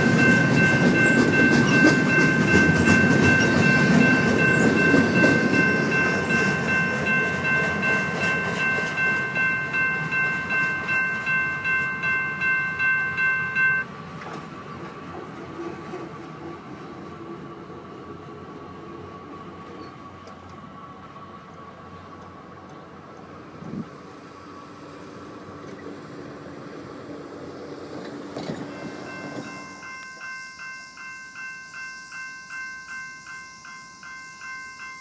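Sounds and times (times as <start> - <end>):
high-pitched ringing tone: 0.0 - 13.9, 28.7 - 35.0
train wheels clattering on rails: 0.0 - 21.2, 27.4 - 30.4.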